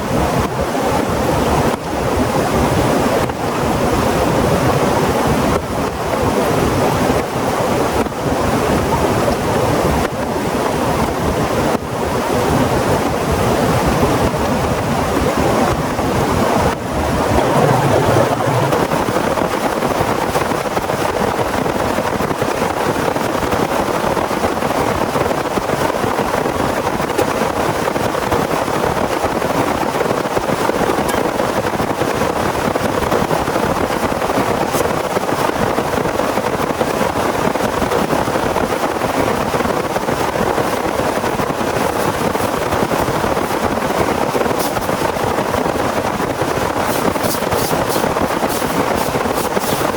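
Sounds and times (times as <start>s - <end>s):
low rumble: 17.0s - 19.5s.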